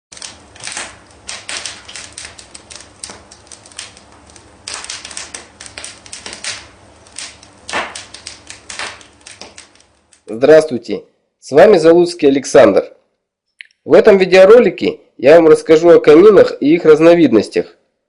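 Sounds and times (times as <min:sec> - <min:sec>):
wood fire crackling: 0:00.1 - 0:12.7.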